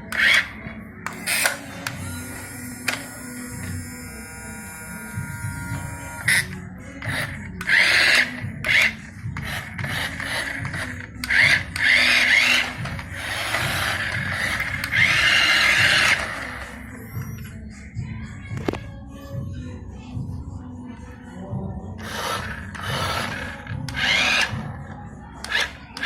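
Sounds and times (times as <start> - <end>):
electric motor and gearbox whining: 0.1 - 0.5, 1.1 - 17.5, 22.0 - 24.6.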